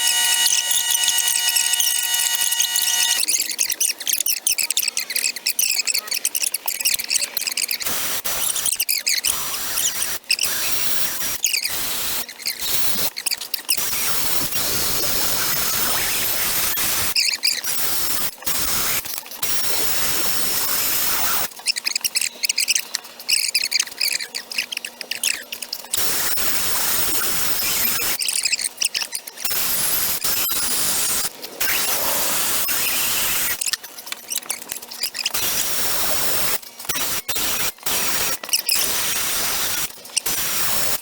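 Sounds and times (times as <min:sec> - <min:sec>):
cutter grinding against metal: 0:00.0 - 0:03.4
die grinder whining: 0:00.0 - 0:03.4.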